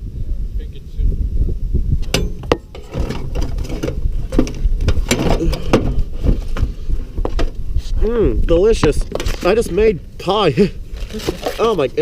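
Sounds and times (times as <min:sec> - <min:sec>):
wind rumble on microphone: 0:00.0 - 0:12.0
hard objects knocking and scraping: 0:02.0 - 0:07.6.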